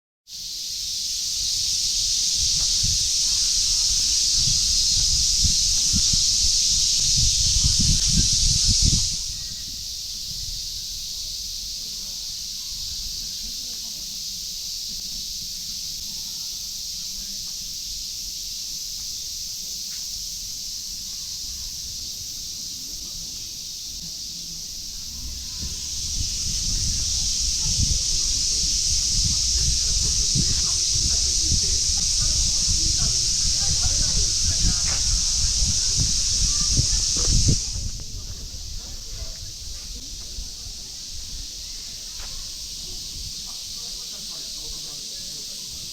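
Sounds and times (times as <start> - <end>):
cicadas chorus: 0.3 - 45.9
footsteps thudding: 34.5 - 35.4.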